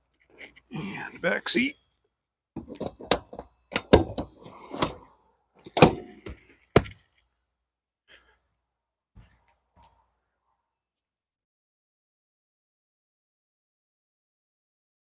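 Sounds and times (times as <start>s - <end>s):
plastic and padding thunks: 2.6s - 5.0s, 5.7s - 7.0s.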